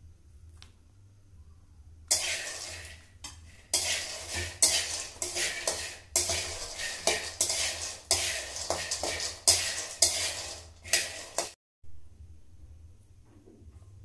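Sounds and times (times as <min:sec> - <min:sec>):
scraping in a dish: 0:02.1 - 0:11.6.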